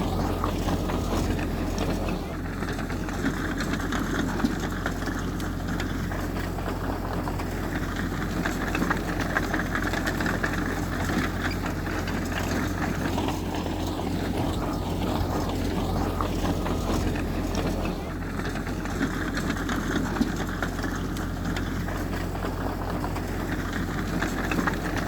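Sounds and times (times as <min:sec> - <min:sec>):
heavy diesel machinery running: 0:00.0 - 0:25.0.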